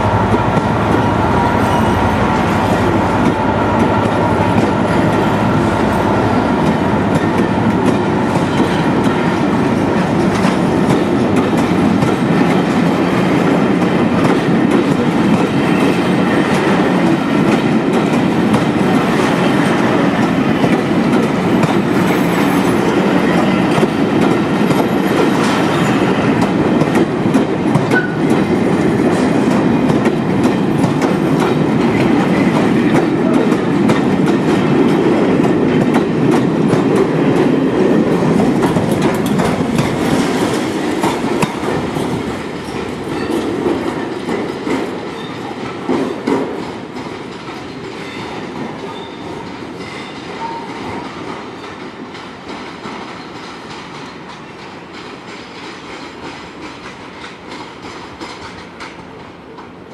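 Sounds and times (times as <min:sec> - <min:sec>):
train wheels rumbling on rails: 0:00.0 - 0:59.9
wheels clickety-clack: 0:06.6 - 0:59.8.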